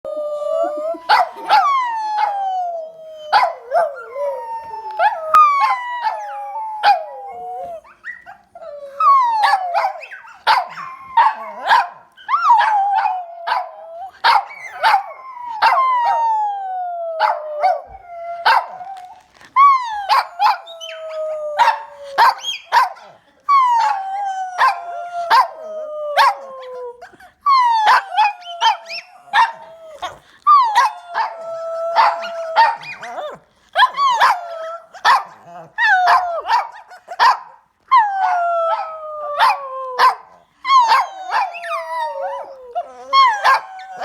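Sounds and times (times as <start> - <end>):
dog howling and whining: 0.1 - 22.9, 23.5 - 37.3, 37.9 - 44.0
dog barking: 9.8 - 12.0, 36.1 - 37.6.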